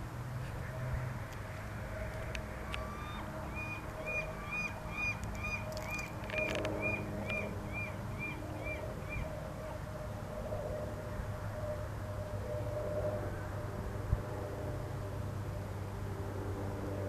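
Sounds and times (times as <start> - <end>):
gull calling: 2.7 - 9.8.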